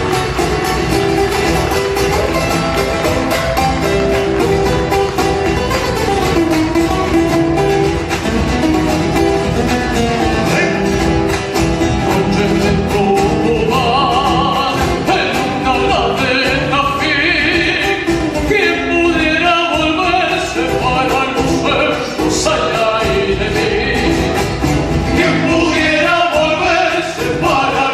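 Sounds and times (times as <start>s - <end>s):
acoustic guitar: 0.0s - 27.9s
person singing with vibrato: 10.2s - 27.9s.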